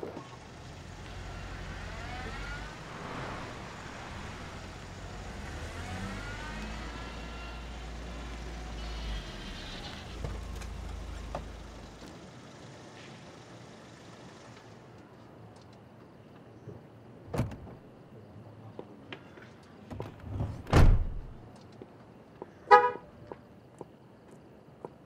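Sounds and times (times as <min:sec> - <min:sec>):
car engine rumbling and revving: 0:00.3 - 0:12.7.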